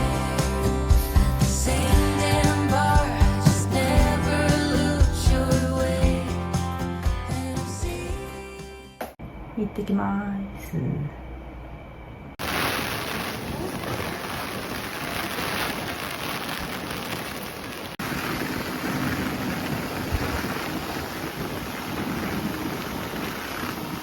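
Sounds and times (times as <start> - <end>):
heavy rain falling: 12.4 - 24.0
wind buffeting microphone: 12.7 - 24.0.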